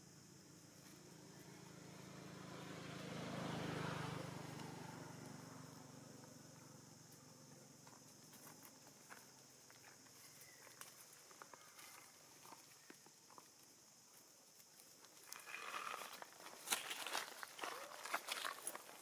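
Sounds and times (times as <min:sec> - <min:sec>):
motor vehicle passing by: 0:00.8 - 0:08.1.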